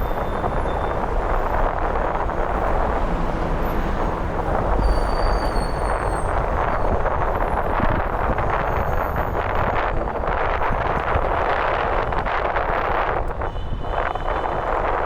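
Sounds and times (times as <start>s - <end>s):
city traffic: 0.0s - 15.0s
wind rushing: 0.0s - 15.0s
faint high squeals: 4.7s - 6.9s.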